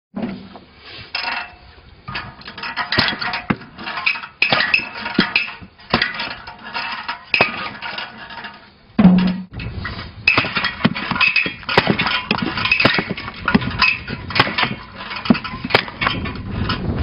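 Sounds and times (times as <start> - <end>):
metal striking wood: 9.0 - 9.6, 10.3 - 16.3.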